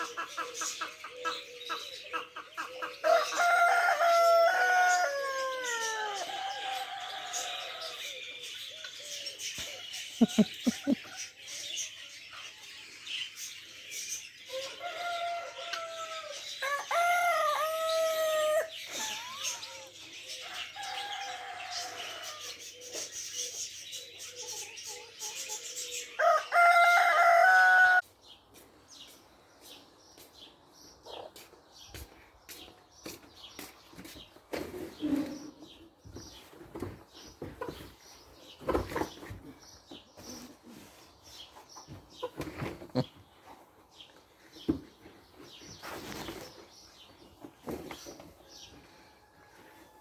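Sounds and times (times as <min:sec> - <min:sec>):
rooster crowing: 0:03.0 - 0:08.0, 0:20.5 - 0:22.5, 0:26.2 - 0:28.0
bird chirps: 0:08.1 - 0:13.0.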